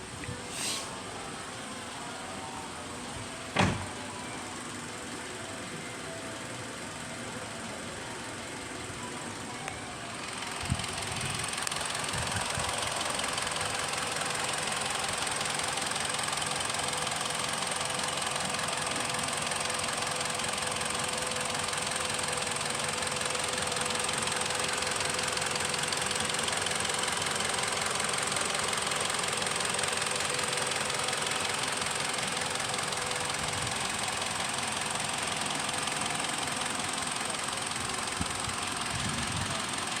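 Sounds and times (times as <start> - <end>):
car engine idling: 0.0 - 40.0
high hiss: 0.2 - 1.2.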